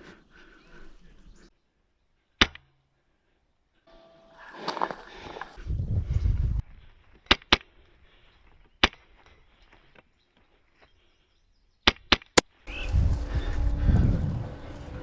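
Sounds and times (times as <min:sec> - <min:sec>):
low rumble: 0:12.7 - 0:15.0.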